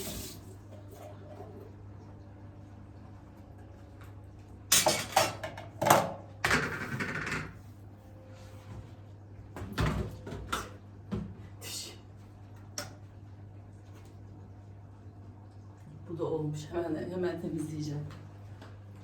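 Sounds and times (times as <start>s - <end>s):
kitchen items knocking and clattering: 4.8s - 7.6s.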